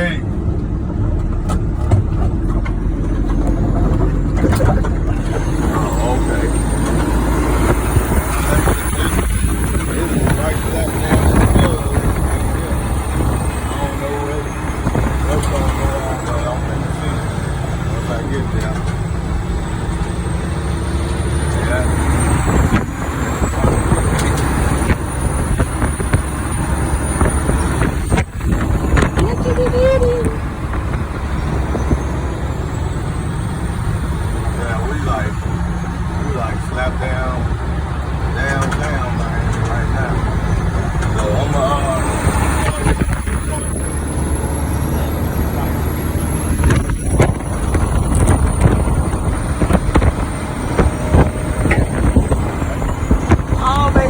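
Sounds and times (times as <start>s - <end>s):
truck engine and road rumble: 0.0s - 54.0s
knocks and rattles from bumps: 0.3s - 13.8s, 14.5s - 54.0s
wind noise: 6.6s - 15.9s, 18.9s - 36.5s, 39.8s - 54.0s.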